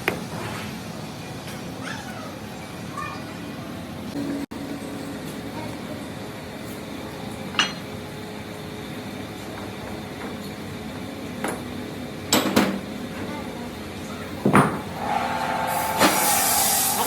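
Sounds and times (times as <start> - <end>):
workshop noise: 14.4 - 17.0
steady whine with hiss: 14.9 - 17.0.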